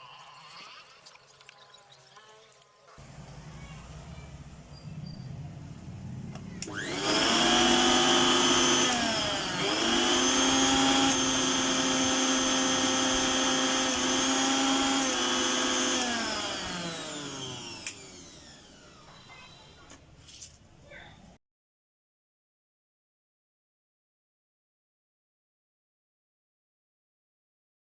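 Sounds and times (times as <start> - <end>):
mixer grinder motor whining: 6.3 - 19.8.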